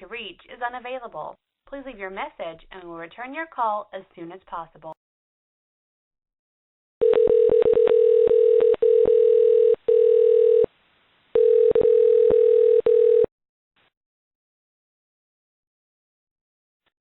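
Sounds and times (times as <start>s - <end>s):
telephone line tone: 7.0s - 10.7s, 11.4s - 13.3s.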